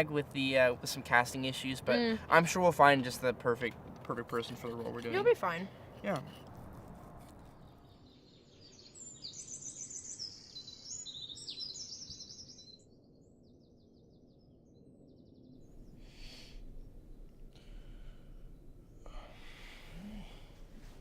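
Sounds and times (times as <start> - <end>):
soft rustle: 5.9 - 7.8, 15.8 - 21.0
songbirds chirping and trilling: 7.3 - 21.0.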